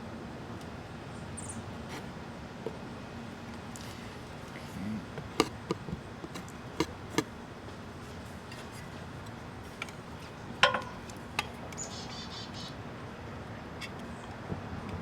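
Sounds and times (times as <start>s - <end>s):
sharp clicks and knocks: 5.3s - 7.3s.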